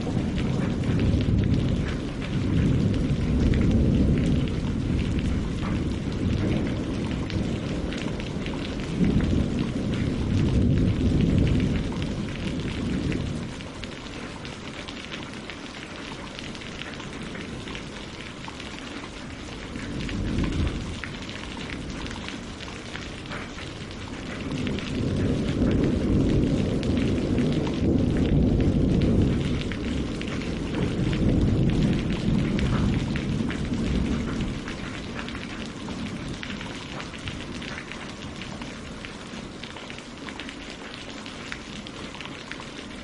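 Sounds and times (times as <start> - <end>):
rain pattering on leaves and water: 0.0 - 43.0.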